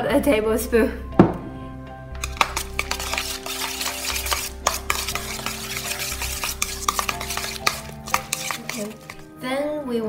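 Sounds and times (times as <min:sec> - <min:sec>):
chopsticks clicking on metal bowl: 0:02.2 - 0:09.2
wet churning of stirred filling: 0:02.2 - 0:09.4.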